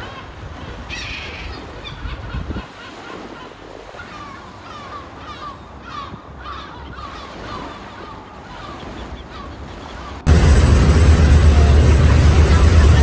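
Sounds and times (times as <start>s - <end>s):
gulls calling: 5.4s - 13.0s
background wash: 10.3s - 13.0s
loud steady rumble: 10.3s - 13.0s.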